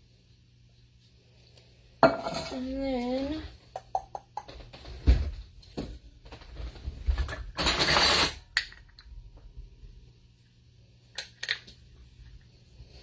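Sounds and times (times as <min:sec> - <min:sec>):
kitchen items knocking: 0:02.0 - 0:02.7
rattling scrape: 0:07.5 - 0:08.4.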